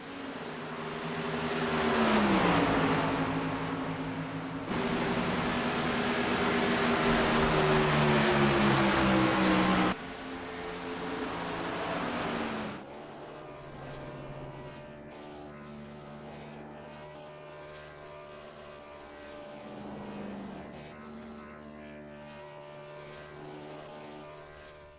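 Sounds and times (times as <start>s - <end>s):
truck engines running: 0.1s - 14.6s.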